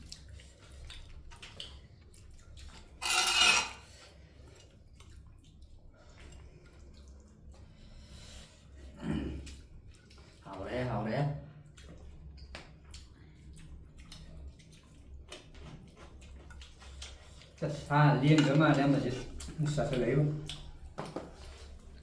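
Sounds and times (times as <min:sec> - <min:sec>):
dishes and utensils clinking: 0:02.8 - 0:04.0, 0:18.2 - 0:19.8.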